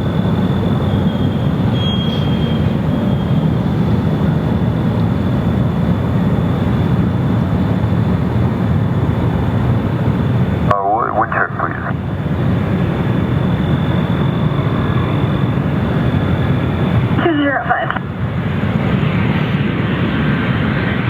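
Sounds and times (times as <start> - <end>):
jet engines rumbling: 0.0 - 21.0
faint high whine: 10.2 - 18.3.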